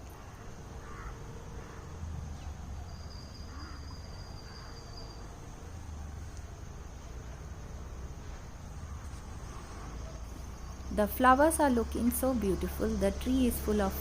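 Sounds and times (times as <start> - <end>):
faint chirps: 0.0 - 11.2
insects droning: 0.0 - 14.0.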